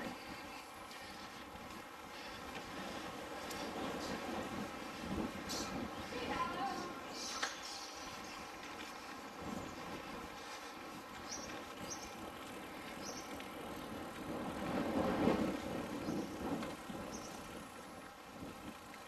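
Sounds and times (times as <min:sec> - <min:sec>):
muffled wind and riding noise: 0:00.0 - 0:19.0
faint high clicks: 0:07.2 - 0:08.0.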